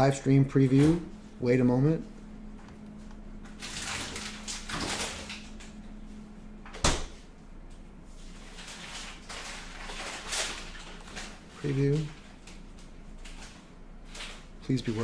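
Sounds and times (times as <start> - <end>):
low electrical hum: 0.0 - 15.0
rustling handling noises: 7.7 - 15.0.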